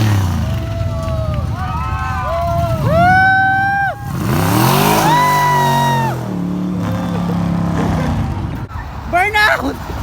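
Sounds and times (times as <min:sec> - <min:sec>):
car engine revving hard: 0:04.0 - 0:08.4.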